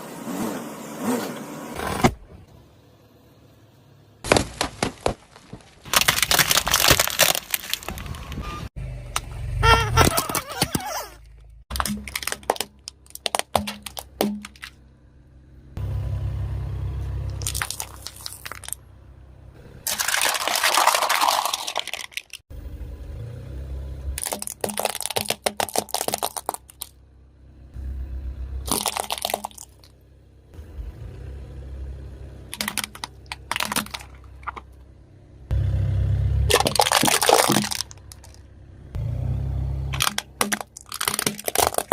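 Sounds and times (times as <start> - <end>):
low rumbling of tyres: 0.0 - 41.9
tyres crunching objects: 4.2 - 14.8, 17.3 - 18.8, 19.8 - 22.4, 24.2 - 26.9, 28.6 - 29.9, 32.5 - 34.8, 36.5 - 38.4, 39.9 - 41.9.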